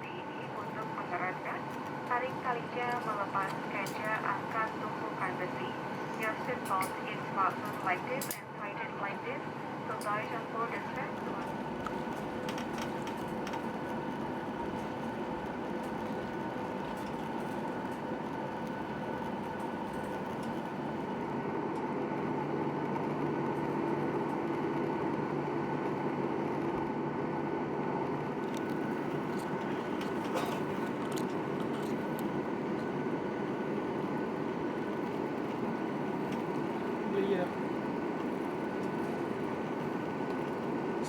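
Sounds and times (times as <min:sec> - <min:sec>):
airliner cabin hum: 0:00.0 - 0:21.4, 0:28.2 - 0:41.0.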